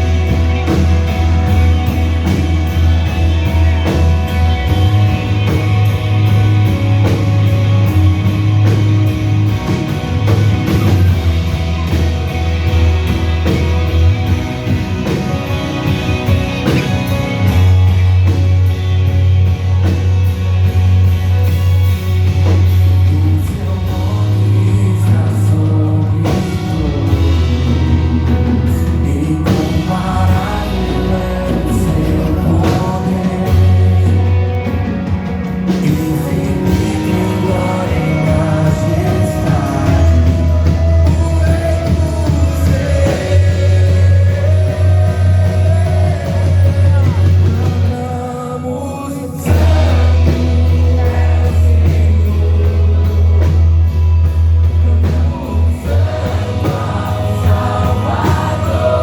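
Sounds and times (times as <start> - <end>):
heavy bass line: 0.0 - 48.6, 49.2 - 59.0
rock band playing: 0.0 - 59.0
person singing: 22.9 - 34.9, 35.5 - 53.7, 54.8 - 59.0.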